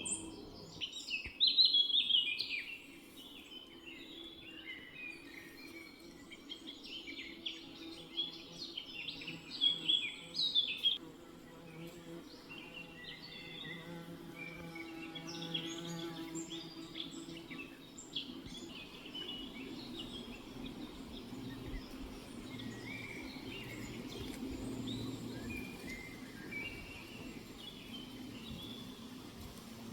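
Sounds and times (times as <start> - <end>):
songbirds chirping: 0.0 - 29.9
low steady hum: 16.6 - 29.9.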